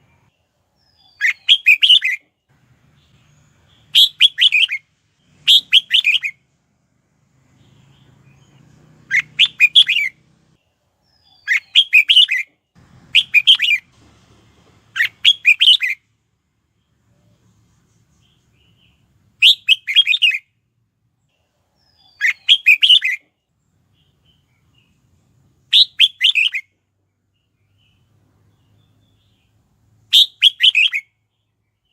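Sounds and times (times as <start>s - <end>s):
bird warbling song: 0.0s - 2.2s, 2.9s - 6.4s, 7.5s - 10.2s, 11.0s - 12.5s, 13.1s - 13.9s, 15.0s - 16.0s, 21.4s - 23.3s, 23.9s - 26.7s, 27.3s - 31.9s.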